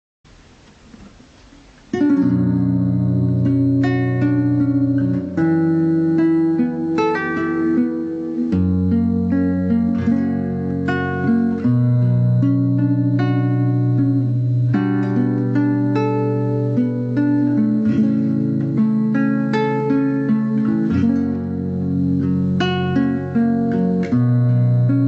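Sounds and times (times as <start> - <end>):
faint hiss: 0.3 - 25.0
acoustic guitar strumming: 0.8 - 25.0.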